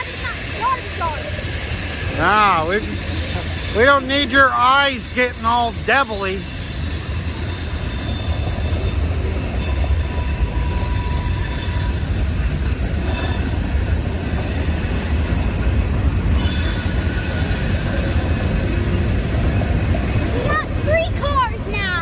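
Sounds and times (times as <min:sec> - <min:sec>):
train wheels rumbling on rail: 0:00.0 - 0:22.0
high-pitched wheel squeal: 0:06.4 - 0:20.3.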